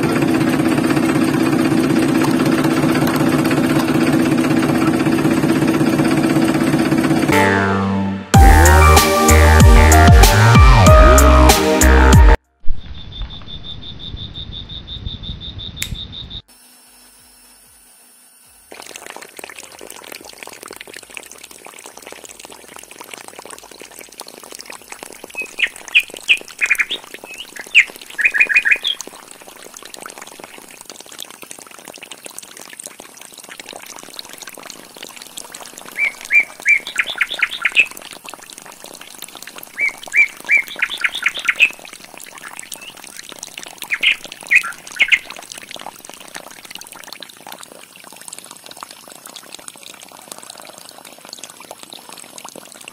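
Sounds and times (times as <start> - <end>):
bird chirping: 12.7 - 16.4, 25.4 - 29.0, 36.0 - 38.0, 39.8 - 41.8, 43.9 - 45.3
water stream pouring onto sand: 18.7 - 52.9.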